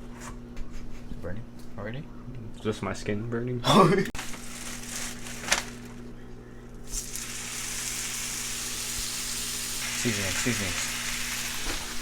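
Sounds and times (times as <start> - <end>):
food sizzling in a pan: 6.8 - 12.0.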